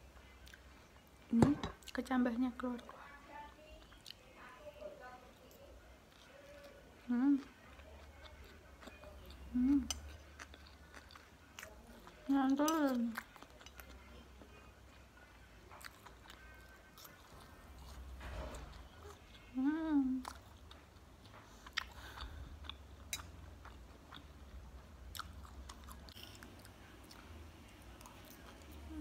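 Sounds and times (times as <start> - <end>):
person chewing crunchy food: 7.4 - 14.1, 15.7 - 19.6, 20.2 - 29.0
person humming: 9.5 - 10.0.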